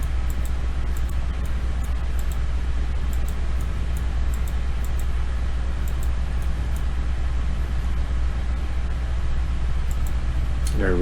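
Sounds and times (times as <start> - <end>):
steady low hum with hiss: 0.0 - 11.0.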